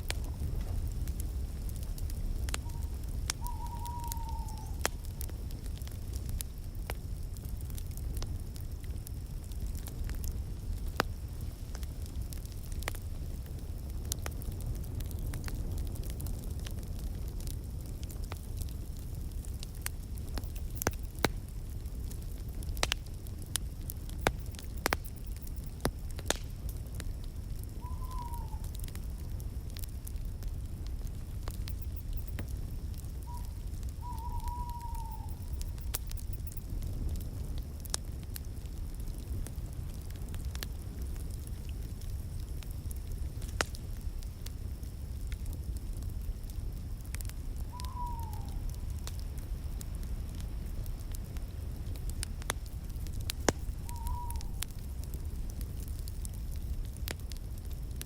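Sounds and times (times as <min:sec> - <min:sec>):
wood fire crackling and popping: 0:00.0 - 0:58.0
faint falling whistle-like tone: 0:02.6 - 0:04.8, 0:27.8 - 0:28.7, 0:33.2 - 0:36.6, 0:47.7 - 0:48.7, 0:53.2 - 0:54.7
short whistle-like tone: 0:53.7 - 0:54.6.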